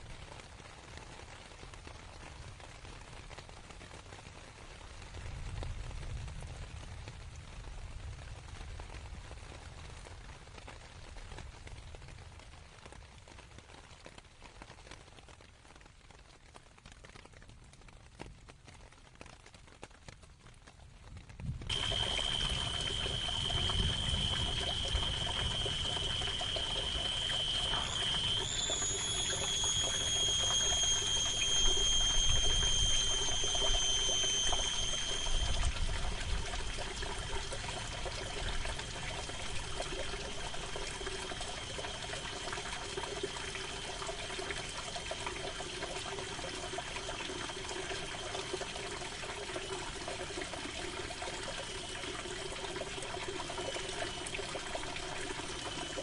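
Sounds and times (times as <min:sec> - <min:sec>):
rain on tent canvas: 0:00.0 - 0:33.2
thin high tone: 0:21.7 - 0:56.0.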